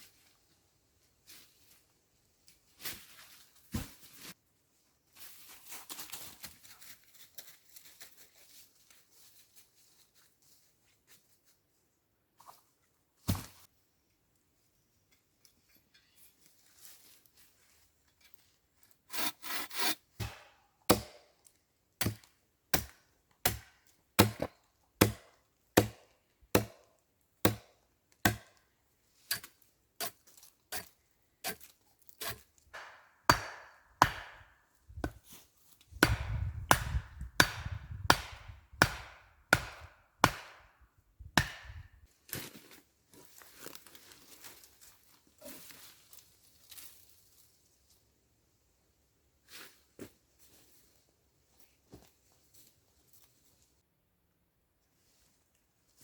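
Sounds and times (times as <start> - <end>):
hand tool strokes on wood: 19.1 - 20.0.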